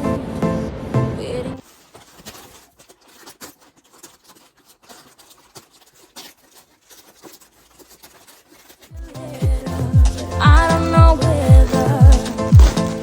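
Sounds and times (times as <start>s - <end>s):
small objects clicking and rustling: 1.6s - 9.0s, 10.2s - 13.0s.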